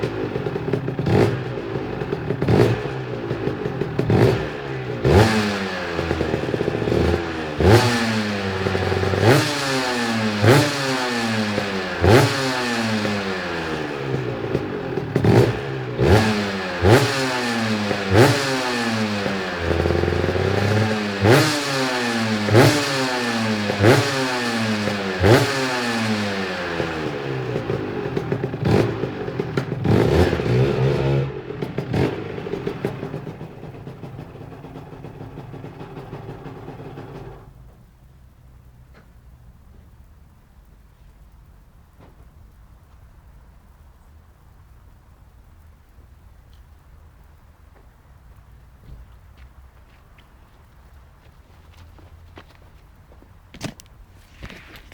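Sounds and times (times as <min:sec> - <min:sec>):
two-stroke engine revving: 0:00.0 - 0:37.6.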